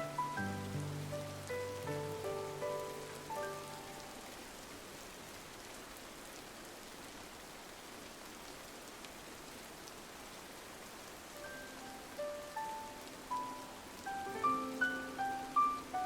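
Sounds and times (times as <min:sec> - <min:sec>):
soft musical notes: 0:00.0 - 0:04.2, 0:11.4 - 0:16.0
rain on a window: 0:00.0 - 0:16.0.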